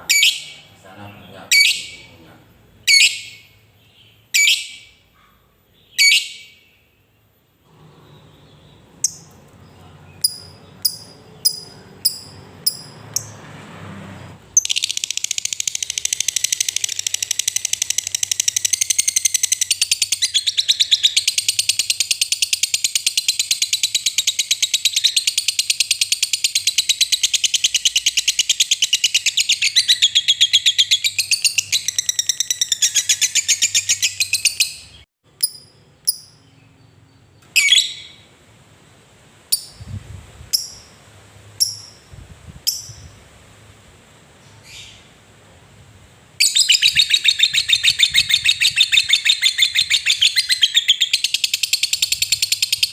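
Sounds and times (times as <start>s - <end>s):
bird chattering trill: 0.0s - 2.2s, 4.3s - 5.0s, 10.2s - 12.9s, 14.6s - 36.5s, 46.4s - 52.9s
bird chirping sharply: 0.0s - 5.1s, 5.7s - 7.2s, 8.0s - 13.4s, 14.5s - 38.3s, 46.4s - 52.9s.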